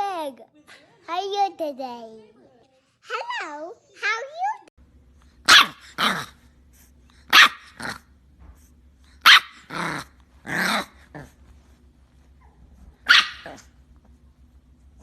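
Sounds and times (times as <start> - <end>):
faint steady hum: 4.8 - 15.0
dog barking: 5.4 - 6.3, 7.3 - 8.0, 9.2 - 9.7, 13.0 - 13.7.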